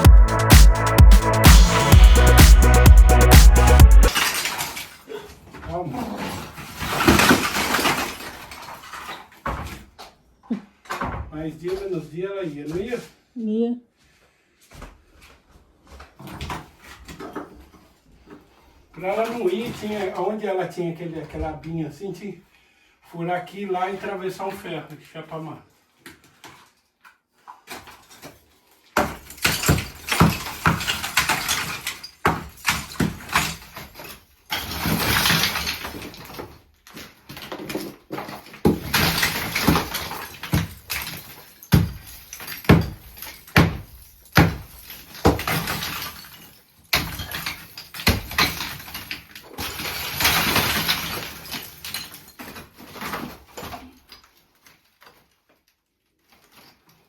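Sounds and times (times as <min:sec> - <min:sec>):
scraping and rustling debris: 0:06.2 - 0:09.4, 0:27.6 - 0:57.0
masonry knocks and bangs: 0:29.0 - 0:33.8, 0:37.4 - 0:46.3, 0:46.9 - 0:52.1.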